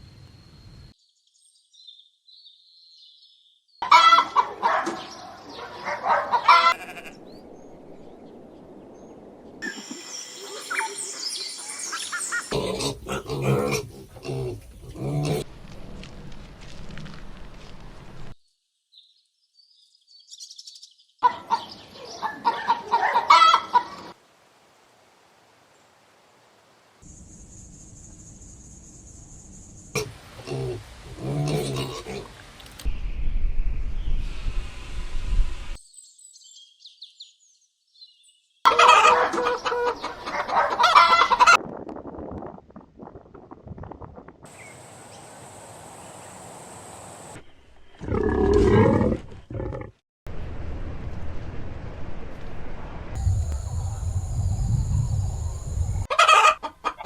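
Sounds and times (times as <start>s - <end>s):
chicken clucking loudly: 3.8s - 5.0s, 5.6s - 6.8s, 21.2s - 24.1s, 38.7s - 41.6s, 56.1s - 57.0s
faint high chirps: 9.6s - 12.5s
low rumble: 32.9s - 35.8s, 50.3s - 56.1s.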